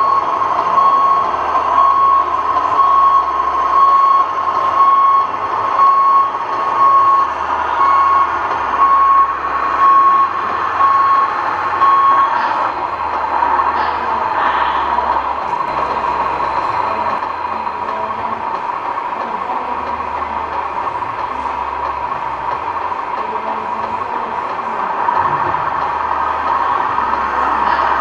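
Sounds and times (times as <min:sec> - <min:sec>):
reversing beeper: 0:00.0 - 0:18.4
engine noise: 0:00.0 - 0:28.0.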